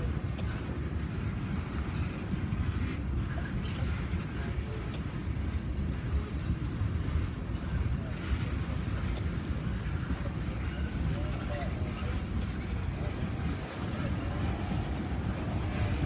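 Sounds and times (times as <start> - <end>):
vehicle engine rumbling: 8.3 - 16.0.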